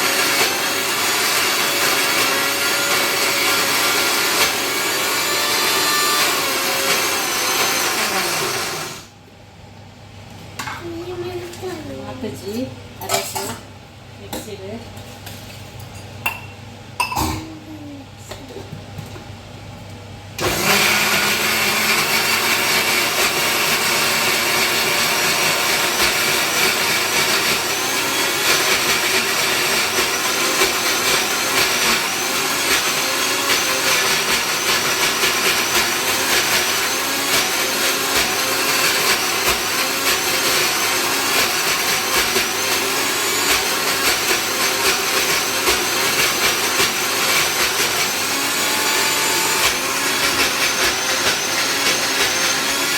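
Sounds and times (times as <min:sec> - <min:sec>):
electric mixer grinder running: 0:00.0 - 0:09.1, 0:20.4 - 0:52.9.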